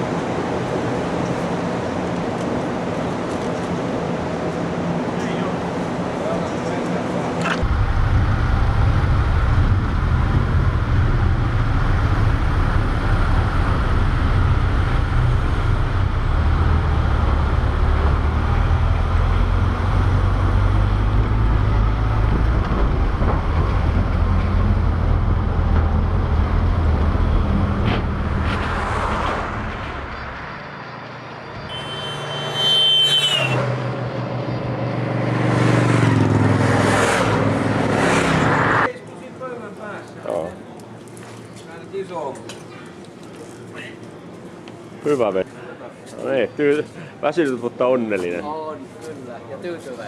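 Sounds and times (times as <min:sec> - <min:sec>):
vehicle engine rumble: 0:05.1 - 0:32.4.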